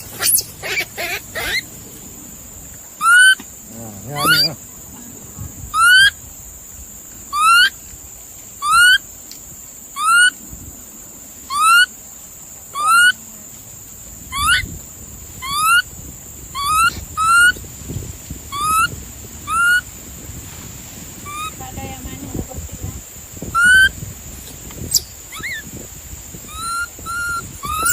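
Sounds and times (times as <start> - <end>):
animal squeaky cry: 0.0 - 1.6, 3.0 - 3.4, 4.2 - 4.5, 5.8 - 6.1, 7.3 - 7.7, 12.8 - 13.2, 19.5 - 19.8, 23.6 - 23.9, 24.9 - 25.6, 26.5 - 27.9.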